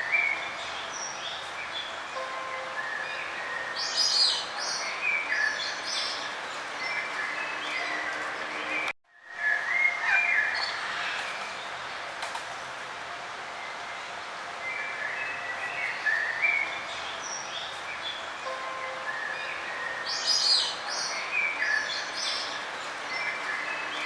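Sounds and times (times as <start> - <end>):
birds chirping: 14.6 - 24.0.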